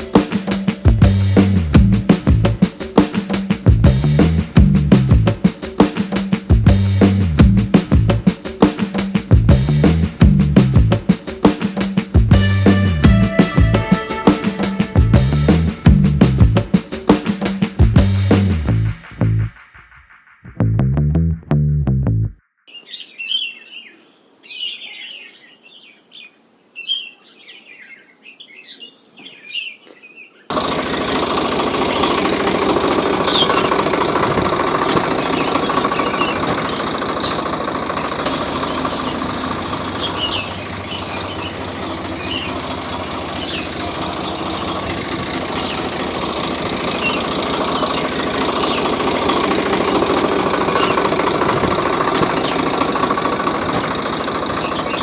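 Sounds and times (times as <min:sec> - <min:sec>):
birds chirping: 0:00.0 - 0:18.5, 0:22.7 - 0:55.0
motor running with rattling drone: 0:30.5 - 0:40.8, 0:41.6 - 0:55.0.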